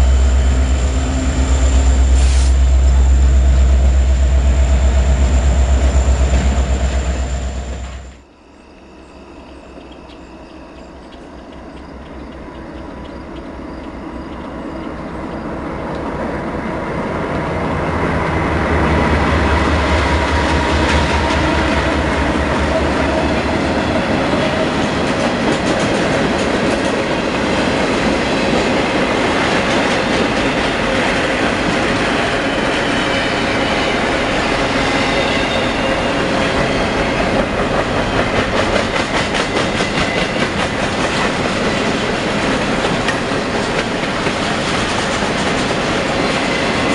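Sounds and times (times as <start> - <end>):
diesel locomotive rumble: 0.0 - 8.3, 9.6 - 46.9
train wheels clattering over rail joints: 19.8 - 32.2, 35.8 - 46.9.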